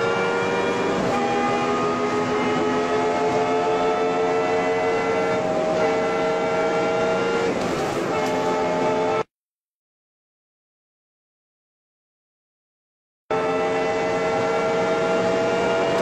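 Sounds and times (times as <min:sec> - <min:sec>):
car engine revving high: 0:00.0 - 0:09.3, 0:13.3 - 0:16.0.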